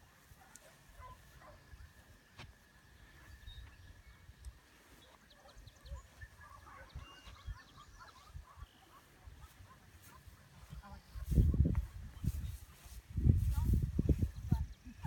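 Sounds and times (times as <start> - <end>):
faint bird chirps: 2.8 - 9.5.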